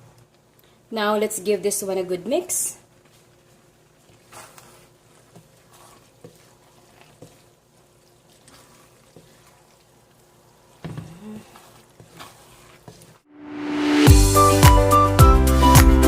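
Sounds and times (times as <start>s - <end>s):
noodles stirred in sauce: 2.5s - 13.2s.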